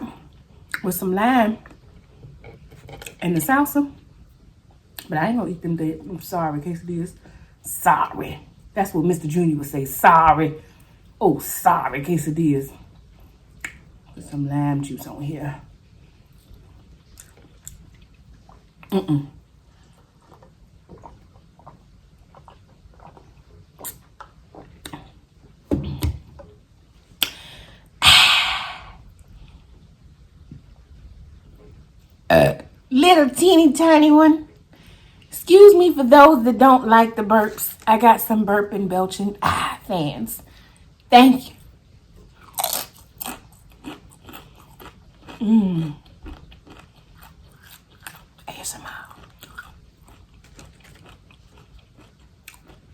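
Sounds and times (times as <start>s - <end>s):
wet mouth clicks: 13.6s - 13.8s, 23.8s - 25.0s, 27.2s - 27.4s
crunchy food chewing: 16.3s - 19.0s, 19.8s - 25.3s, 42.2s - 52.9s.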